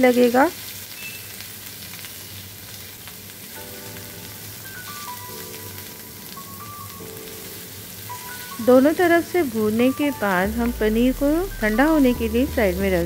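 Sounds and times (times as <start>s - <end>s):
cheese sizzling in oil: 0.0s - 13.0s
soft background music: 3.2s - 13.0s.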